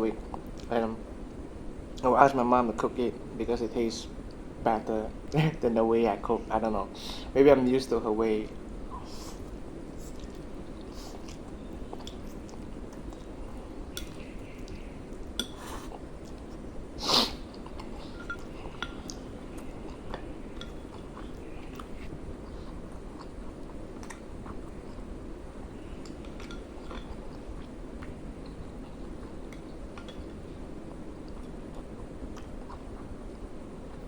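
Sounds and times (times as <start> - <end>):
steady background noise: 0.0 - 34.0
person chewing noodles: 8.9 - 34.0.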